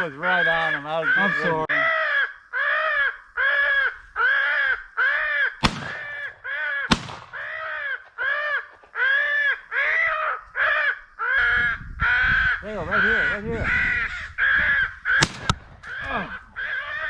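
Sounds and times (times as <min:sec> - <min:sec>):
crow cawing: 0:00.0 - 0:17.0
shotgun shots: 0:05.6 - 0:07.7, 0:15.2 - 0:15.9.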